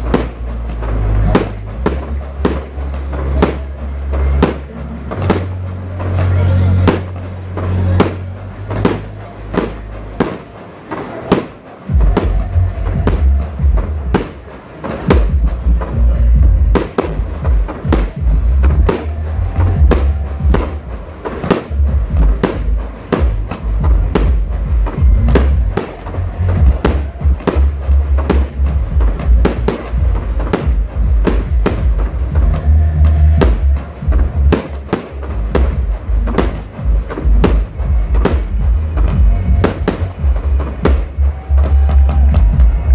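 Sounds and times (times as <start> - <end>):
deep continuous rumble: 15.3 - 42.9.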